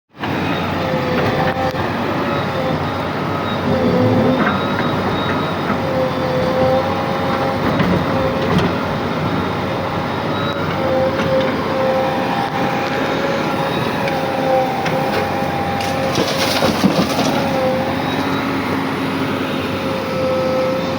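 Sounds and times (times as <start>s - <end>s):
diesel engine running: 0.1s - 20.9s
high whine: 0.4s - 8.5s.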